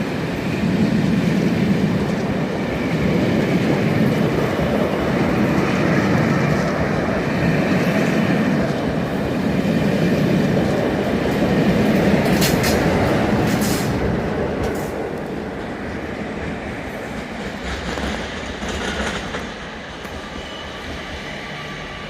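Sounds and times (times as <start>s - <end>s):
train wheels rumbling and clattering: 0.0s - 22.0s
wheel squealing on rail: 18.2s - 22.0s.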